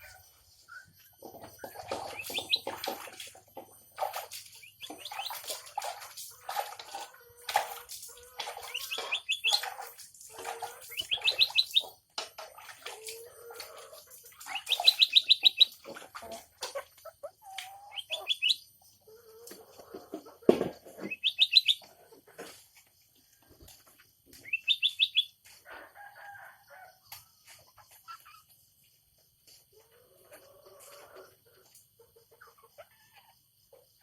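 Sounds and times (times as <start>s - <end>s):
songbird singing: 0.0s - 6.5s, 8.4s - 10.1s, 10.8s - 12.2s, 14.3s - 16.2s, 17.4s - 19.2s, 20.6s - 26.9s
high bird trills: 14.4s - 15.8s, 17.9s - 18.7s, 21.1s - 21.8s, 24.4s - 25.4s.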